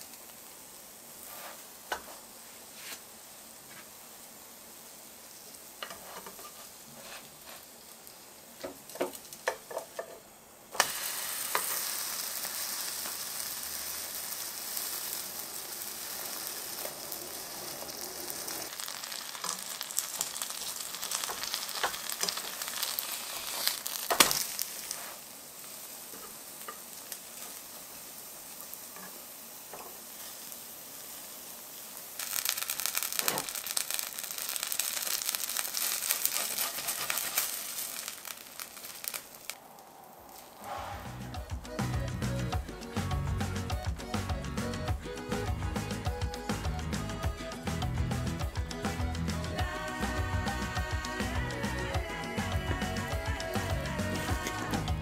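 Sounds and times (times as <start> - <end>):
dough sizzling in oil: 0.0 - 39.6.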